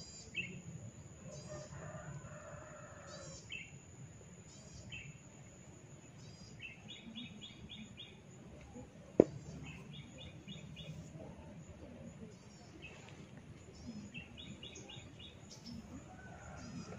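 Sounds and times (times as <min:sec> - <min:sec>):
small birds chirping: 0:04.4 - 0:16.9.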